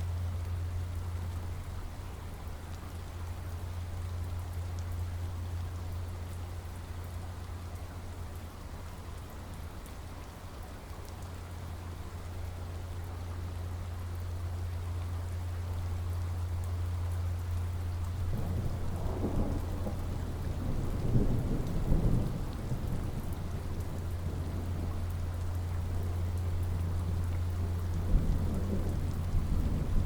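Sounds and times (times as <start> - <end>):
steady rain falling: 0.0 - 30.0
rolling thunder rumble: 18.1 - 30.0.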